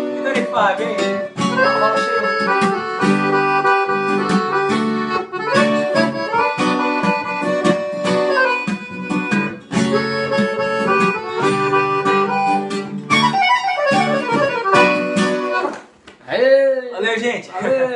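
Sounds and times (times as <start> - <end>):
strummed acoustic guitar: 0.0 - 15.9
free-reed instrument melody: 0.0 - 16.0.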